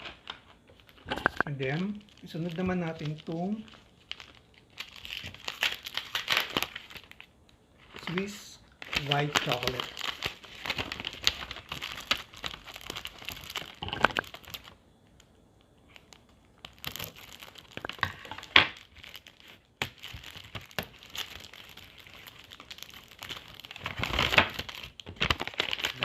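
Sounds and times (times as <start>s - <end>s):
wrapper crinkling and tearing: 0.0s - 15.3s, 15.9s - 26.0s
wrapper snap: 7.9s - 14.8s, 15.9s - 26.0s.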